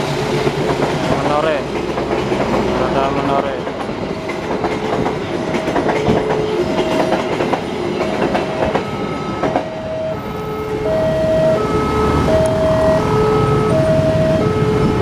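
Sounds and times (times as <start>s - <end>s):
train wheels clattering over rail joints: 0.0s - 9.8s
two-note crossing warning alarm: 8.4s - 15.0s.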